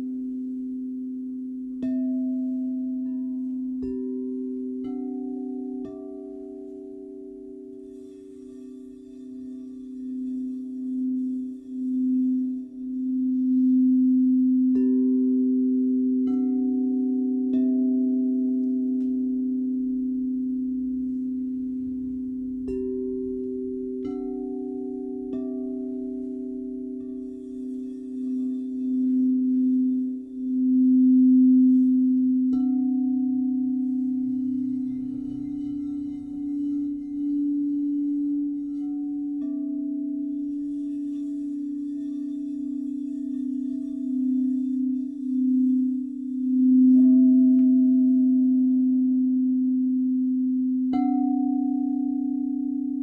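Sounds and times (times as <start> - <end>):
singing bowls ringing: 0.0 - 53.0
soft bowl strikes: 0.0 - 53.0.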